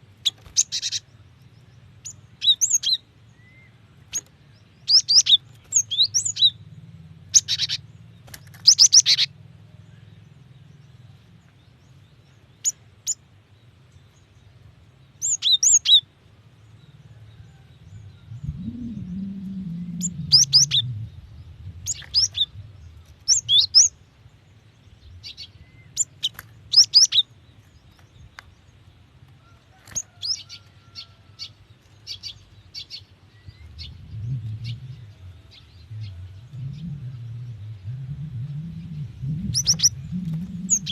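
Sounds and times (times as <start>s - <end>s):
steady low hum: 0.0s - 15.4s, 16.0s - 29.4s, 31.5s - 40.9s
low rumble: 16.8s - 26.7s, 33.3s - 40.9s
tit chirping: 38.0s - 40.9s.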